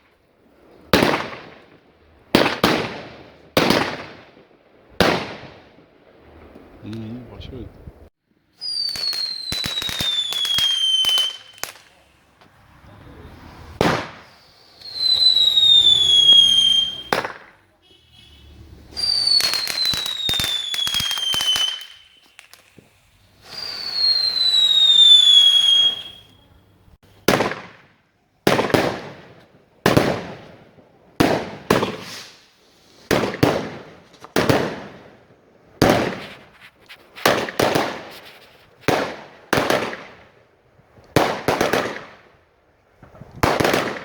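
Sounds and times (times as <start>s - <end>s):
loud firework bangs echoing: 0.8s - 6.5s, 13.3s - 17.6s, 27.2s - 36.5s, 37.2s - 38.2s, 38.8s - 40.4s, 41.1s - 42.4s, 43.0s - 44.0s
firework whistles with crackling: 8.5s - 12.4s, 13.1s - 17.6s, 18.4s - 26.6s, 31.2s - 35.1s, 35.8s - 40.2s.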